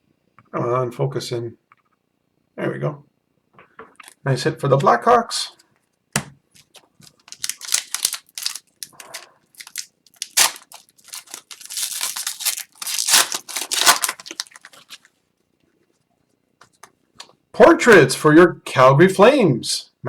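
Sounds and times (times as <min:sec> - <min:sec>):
card wrappers crinkling: 0:06.6 - 0:15.1.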